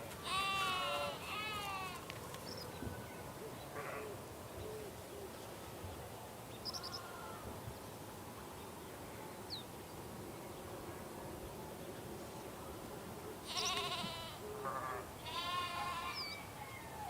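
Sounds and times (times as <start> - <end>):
small birds chirping: 4.5 - 7.2.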